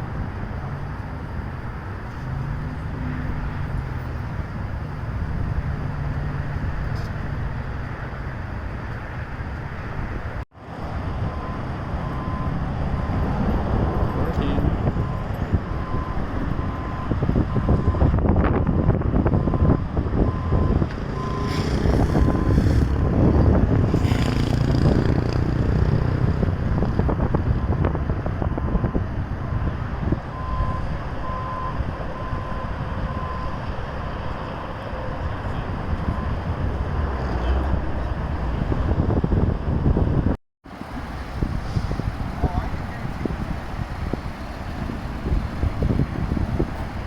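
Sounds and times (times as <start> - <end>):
vehicle engines and traffic: 0.0 - 47.0
wind buffeting microphone: 0.0 - 47.0.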